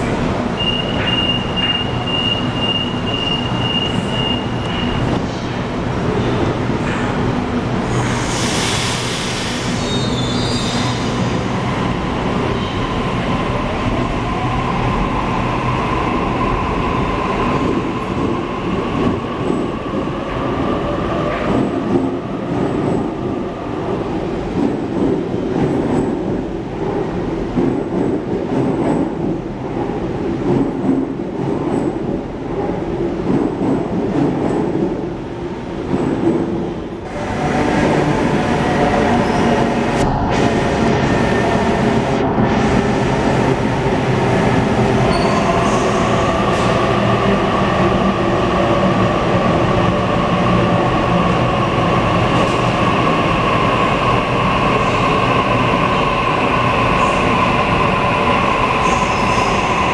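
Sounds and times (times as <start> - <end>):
air hiss: 7.9 - 10.1.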